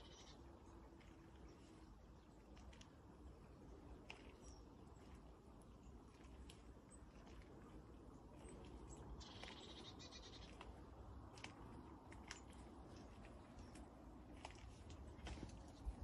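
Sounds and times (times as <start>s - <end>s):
faint low rumble: 0.0s - 16.0s
small bird trilling: 9.2s - 10.6s.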